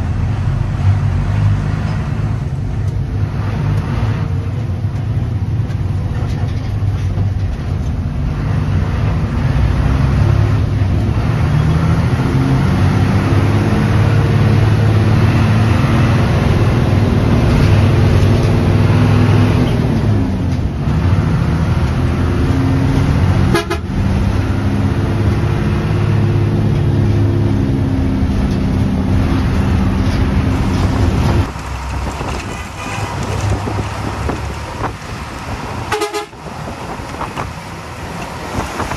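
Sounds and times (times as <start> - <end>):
bus diesel engine running: 0.0 - 38.9
bus horn toots: 23.4 - 24.0, 32.2 - 33.8, 35.8 - 36.5.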